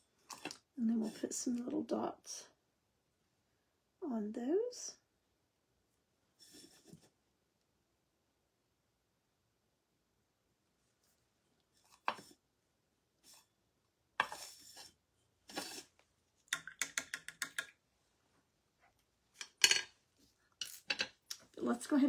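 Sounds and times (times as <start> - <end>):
painting tools clinking and tapping: 16.5 - 17.8, 19.4 - 20.0, 20.6 - 21.3.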